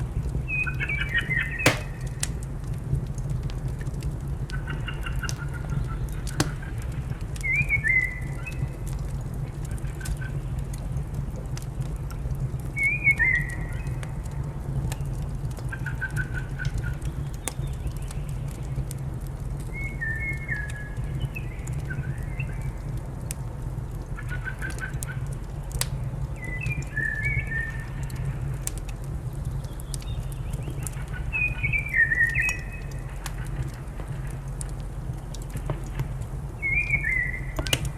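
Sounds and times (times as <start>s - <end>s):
wood fire crackling: 0.0s - 37.9s
songbird singing: 36.6s - 37.9s.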